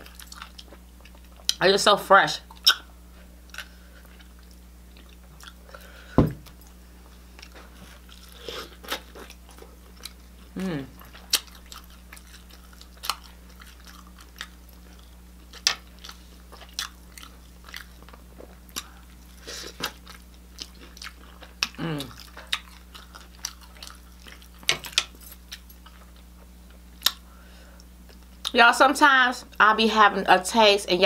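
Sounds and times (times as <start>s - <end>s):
crunching fried chicken: 7.4s - 27.3s
person humming: 10.5s - 11.0s, 21.8s - 22.2s.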